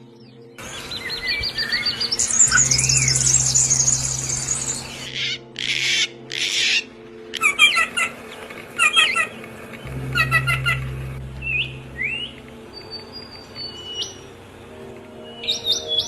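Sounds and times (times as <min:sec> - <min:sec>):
bird high trill: 0:00.6 - 0:08.2, 0:08.8 - 0:14.4
harsh rasping bird calls: 0:00.6 - 0:14.7
faint low hum: 0:09.5 - 0:15.2.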